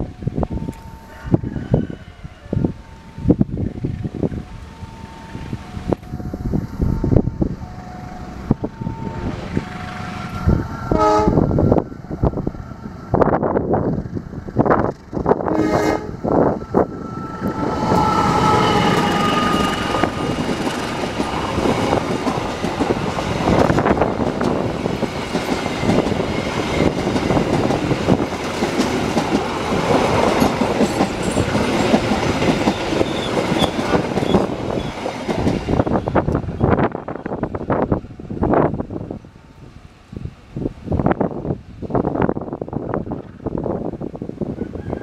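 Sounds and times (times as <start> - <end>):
train rumbling past: 0.0 - 45.0
train horn: 8.7 - 11.6, 15.4 - 20.5
wheels clattering over rail joints: 18.8 - 37.5.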